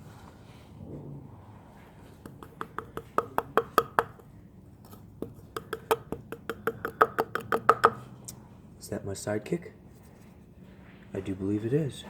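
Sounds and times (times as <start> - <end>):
light taps on a cup: 2.3 - 4.3, 5.2 - 8.0.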